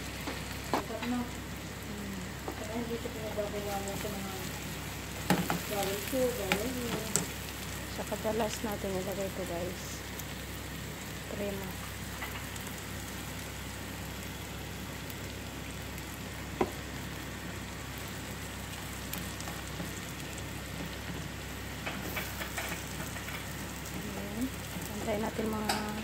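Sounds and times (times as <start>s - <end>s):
eggs sizzling in a frying pan: 0.0s - 26.0s
spatula tapping and scraping pan: 21.8s - 23.5s.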